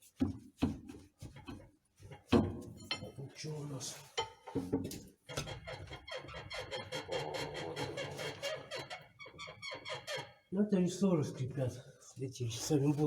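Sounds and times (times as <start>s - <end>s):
leaf springs squeaking: 5.5s - 10.5s.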